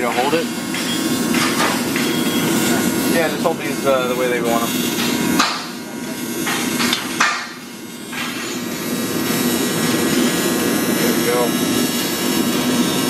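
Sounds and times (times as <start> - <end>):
workshop noise: 0.0 - 13.0
hammer strikes: 5.0 - 5.8, 6.4 - 8.6.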